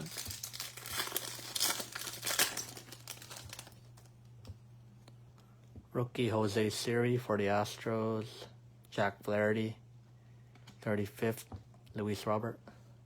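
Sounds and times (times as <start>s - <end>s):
card pack wrapper tearing: 0.0s - 4.1s.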